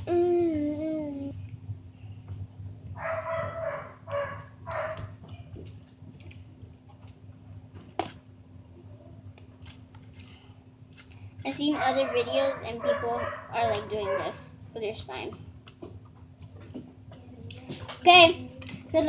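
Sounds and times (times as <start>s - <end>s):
small dog yipping: 3.0s - 5.1s.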